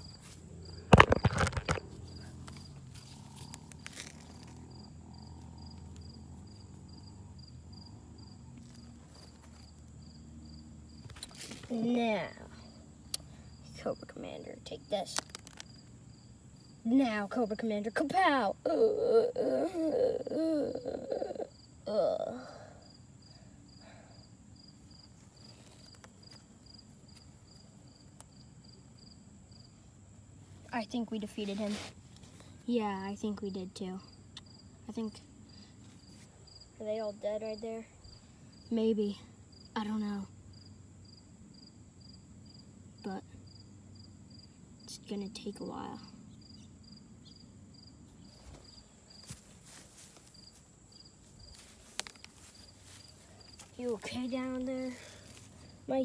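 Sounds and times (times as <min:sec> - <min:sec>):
cricket chirping: 0:00.0 - 0:56.0
plastic figures clattering: 0:00.9 - 0:04.6
child groaning cry: 0:18.6 - 0:22.8.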